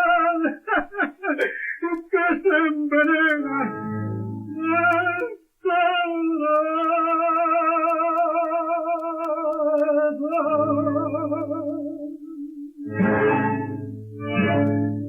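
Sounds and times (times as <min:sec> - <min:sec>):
man singing a long vibrato note: 0:04.5 - 0:13.4
low guitar notes: 0:12.9 - 0:15.0.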